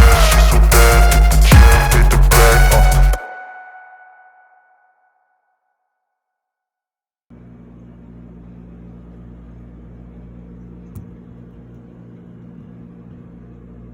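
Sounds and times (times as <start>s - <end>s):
low mechanical hum: 7.3s - 13.9s.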